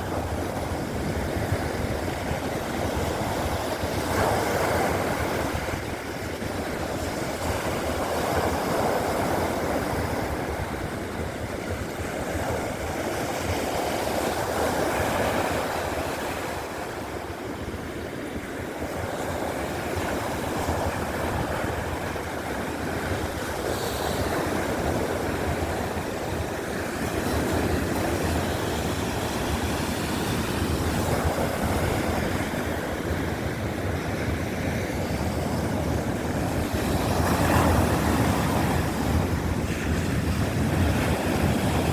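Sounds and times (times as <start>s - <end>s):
surf washing onto beach: 0.0s - 41.9s.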